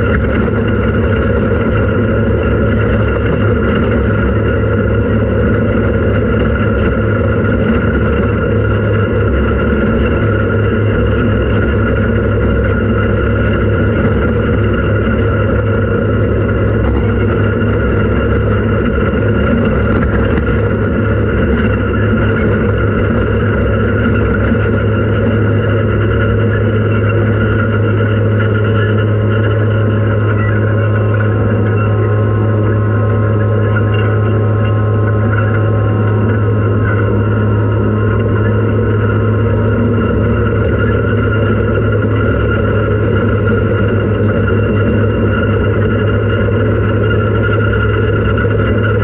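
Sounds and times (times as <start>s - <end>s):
vehicle engine droning: 0.0s - 49.0s.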